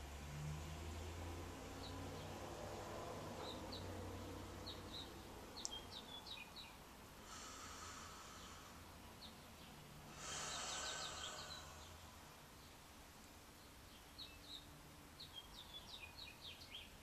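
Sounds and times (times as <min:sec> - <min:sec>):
low background hum: 0:00.0 - 0:17.0
birds chirping: 0:03.2 - 0:12.9, 0:13.5 - 0:17.0.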